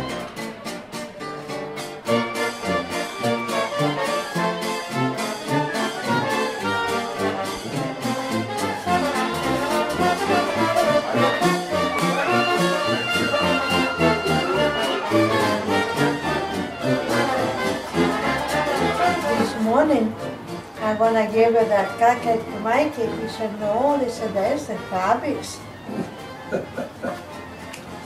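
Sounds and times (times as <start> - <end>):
trumpet: 0.0 - 0.7, 2.0 - 28.0
trombone: 2.0 - 27.6
bass line: 2.1 - 20.2.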